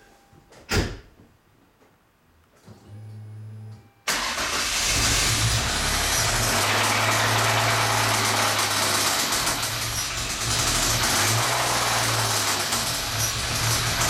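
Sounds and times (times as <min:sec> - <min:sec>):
car engine starting and running: 0:04.1 - 0:14.0.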